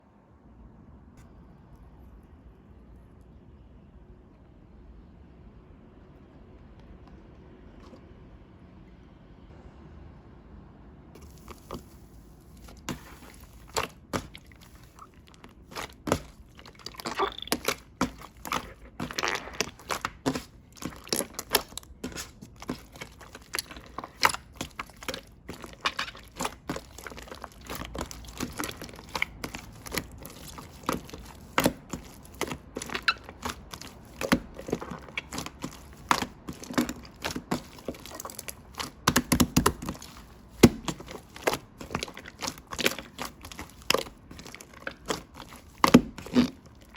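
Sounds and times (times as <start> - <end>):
slime squishing: 11.2 - 46.9.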